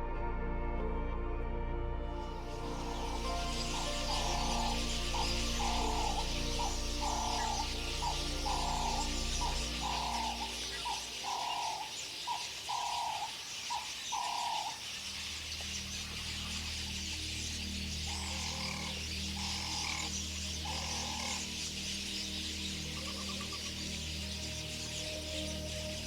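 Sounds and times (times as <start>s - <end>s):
low steady drone: 0.0s - 12.1s, 15.3s - 26.0s
high outdoor hiss: 2.2s - 26.0s
bird calling: 2.4s - 26.0s.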